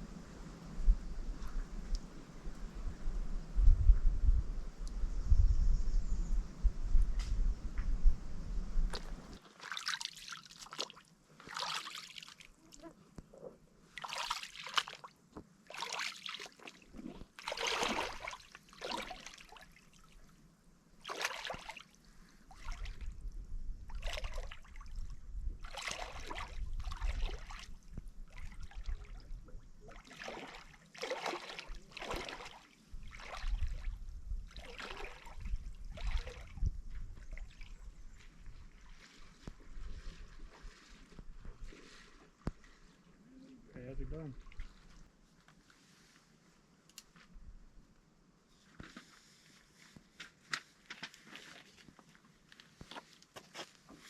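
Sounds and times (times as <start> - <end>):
water sloshing and splashing: 8.9 - 12.8, 13.9 - 20.4, 21.0 - 43.1, 44.3 - 45.1, 50.8 - 54.0.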